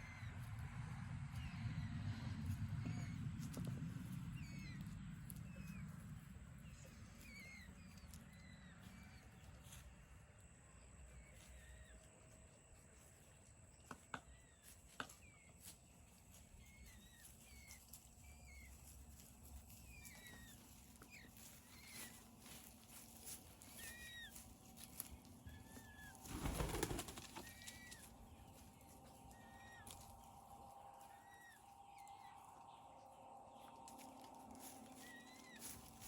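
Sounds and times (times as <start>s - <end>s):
songbirds chirping: 0.0s - 36.0s
peafowl wings flapping: 26.1s - 28.1s.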